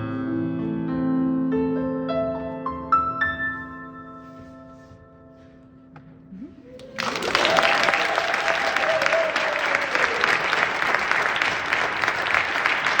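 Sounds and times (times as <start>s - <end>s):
piano: 0.0s - 13.0s
person cheering: 6.6s - 10.7s
audience applauding: 6.7s - 13.0s.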